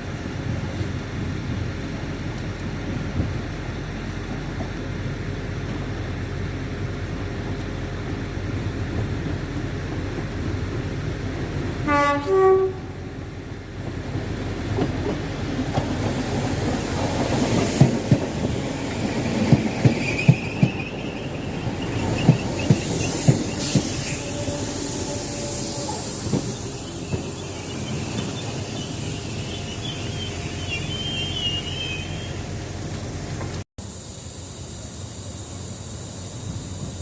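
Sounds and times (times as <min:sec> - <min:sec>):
train rumble: 0:00.0 - 0:34.0
two-tone train horn: 0:11.8 - 0:13.2, 0:24.1 - 0:26.2
high wheel squeal: 0:19.7 - 0:32.6.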